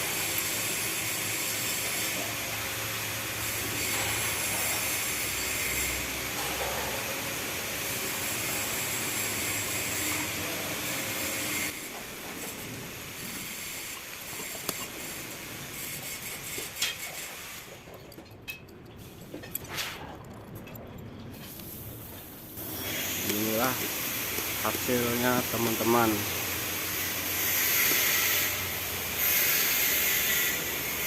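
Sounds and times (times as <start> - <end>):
steady hissing: 21.4 - 31.0.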